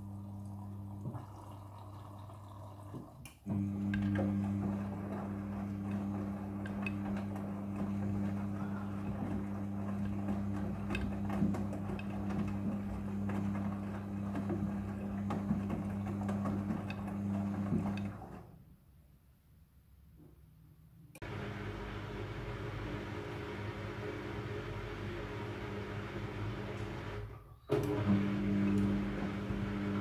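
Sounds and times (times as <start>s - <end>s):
washing machine motor hum: 0.0s - 18.6s, 21.2s - 30.0s
tumbling drum clicks and knocks: 9.1s - 18.2s.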